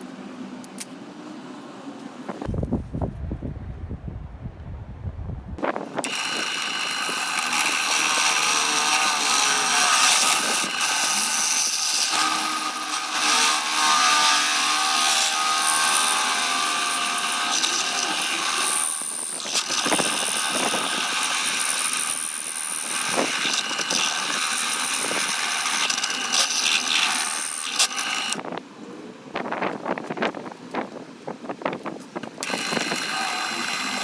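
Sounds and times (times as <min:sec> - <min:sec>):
belt grinder whining: 0:06.0 - 0:28.4, 0:32.4 - 0:34.0.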